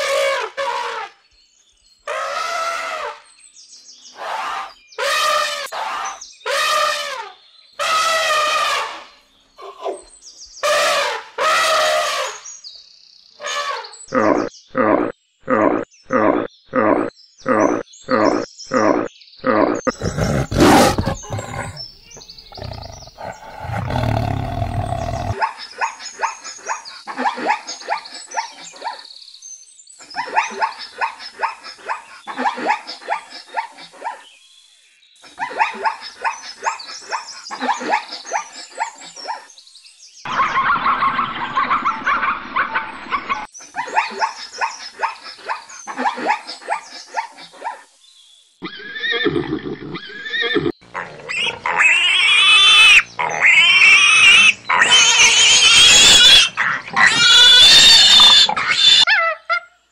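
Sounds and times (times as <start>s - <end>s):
pitched animal call: 13.5s - 21.9s, 22.5s - 25.4s, 48.6s - 59.7s
pig squealing: 14.1s - 21.8s, 22.5s - 25.4s, 48.6s - 59.4s
rapid rasping animal calls: 14.1s - 21.9s, 22.5s - 25.4s, 48.6s - 59.4s.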